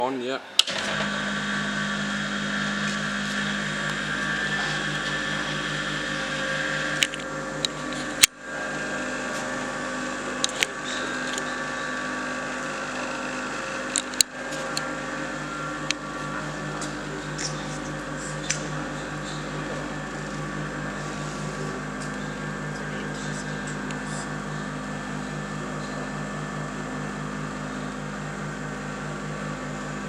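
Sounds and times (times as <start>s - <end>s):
mechanical hum: 0.0s - 30.0s
regular pulsing beat: 1.2s - 30.0s
sharp clicks: 13.8s - 14.9s.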